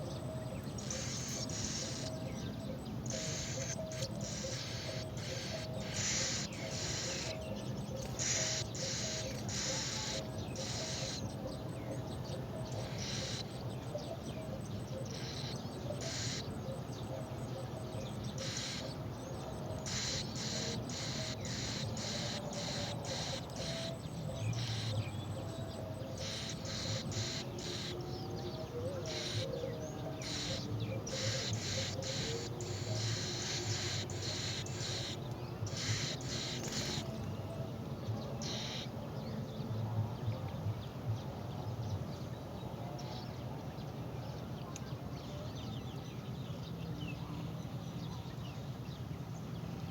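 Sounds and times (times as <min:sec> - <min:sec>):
raspy high-pitched bird calls: 0:00.0 - 0:11.7, 0:12.8 - 0:13.6, 0:14.9 - 0:17.7, 0:19.8 - 0:25.0, 0:26.2 - 0:28.0, 0:30.2 - 0:37.2
fainter lower bird calls: 0:00.0 - 0:28.0, 0:30.2 - 0:37.4.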